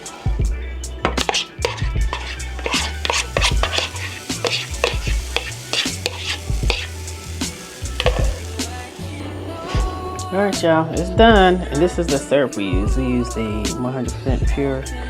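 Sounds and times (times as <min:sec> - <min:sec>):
pancakes sizzling in a pan: 0:00.0 - 0:10.1
spatula scraping a pan: 0:01.1 - 0:10.1.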